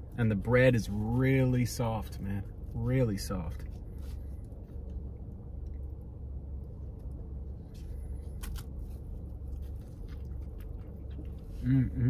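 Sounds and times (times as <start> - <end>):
low hum inside a car: 0.0 - 12.0
man chewing: 6.8 - 12.0.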